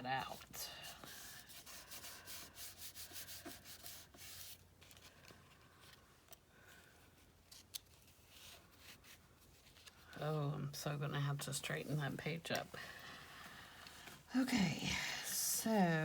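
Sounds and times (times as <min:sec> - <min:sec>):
rubbing strokes on paper: 0:00.6 - 0:04.7.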